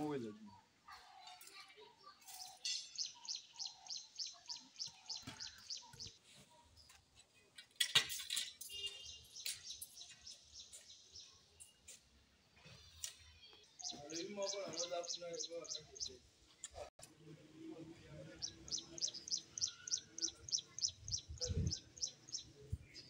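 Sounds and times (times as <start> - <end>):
bird chirping: 2.2 - 6.2, 8.4 - 12.0, 13.5 - 16.9, 18.2 - 23.0.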